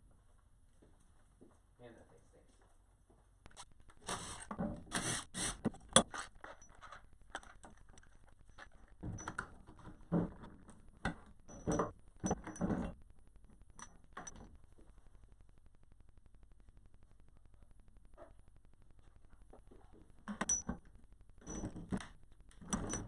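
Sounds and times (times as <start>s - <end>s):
metal parts and tools clinking: 5.8s - 9.6s, 11.5s - 13.0s, 20.3s - 22.0s, 22.6s - 23.0s.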